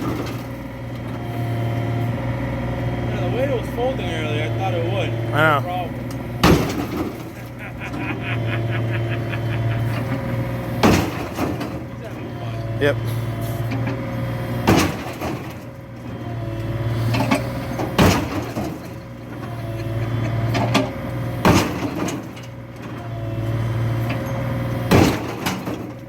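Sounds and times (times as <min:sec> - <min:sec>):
vehicle engine running: 0:00.0 - 0:21.5
loud bangs: 0:06.3 - 0:12.0.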